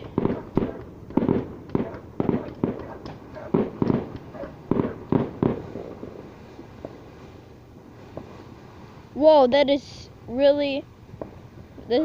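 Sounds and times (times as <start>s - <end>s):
fireworks bangs: 0.0s - 8.9s.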